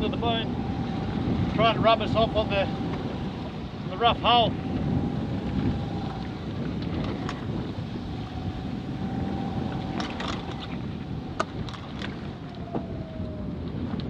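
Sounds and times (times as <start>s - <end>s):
faint wavering whistle: 0.0s - 13.6s
water rushing past hull: 0.0s - 14.0s
wind rumbling on microphone: 0.0s - 14.0s.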